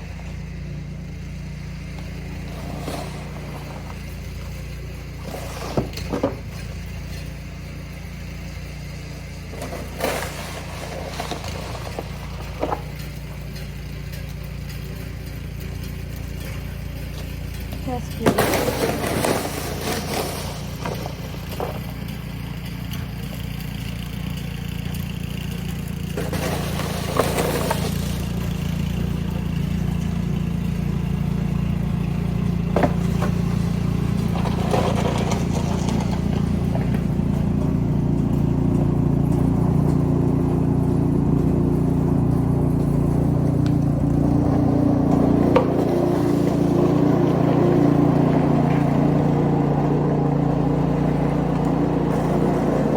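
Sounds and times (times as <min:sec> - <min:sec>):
engine running: 0:00.0 - 0:52.9
shovel scraping snow: 0:01.7 - 0:07.0, 0:09.2 - 0:12.9, 0:17.8 - 0:23.4, 0:25.6 - 0:40.0, 0:40.8 - 0:52.9.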